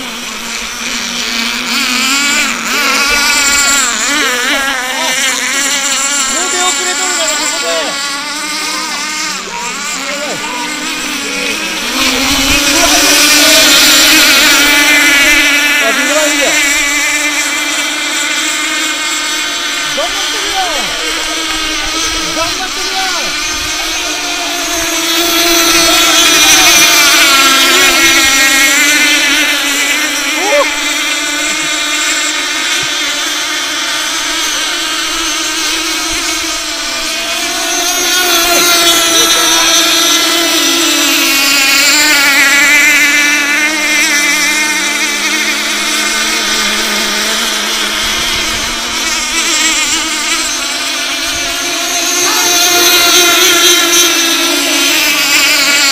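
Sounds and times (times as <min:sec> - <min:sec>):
racing boat engines whining: 0:00.0 - 0:55.9.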